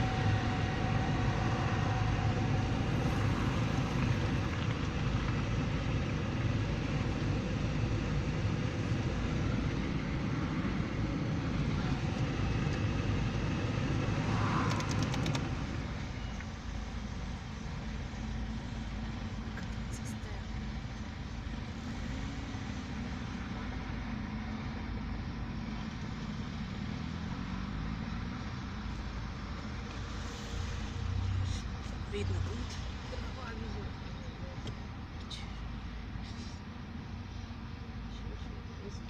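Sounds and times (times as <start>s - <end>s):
train wheels rumbling on rails: 10.4s - 17.9s.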